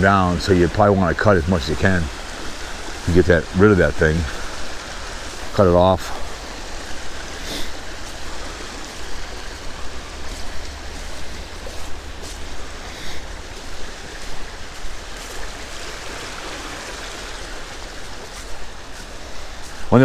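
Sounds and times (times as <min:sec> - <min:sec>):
creek water running: 0:00.0 - 0:20.0.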